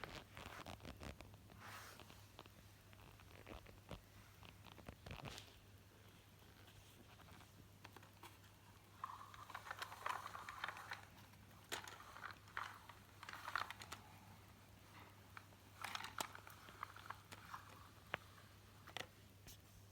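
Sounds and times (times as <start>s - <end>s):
toy cars clicking and rattling: 7.9s - 19.1s.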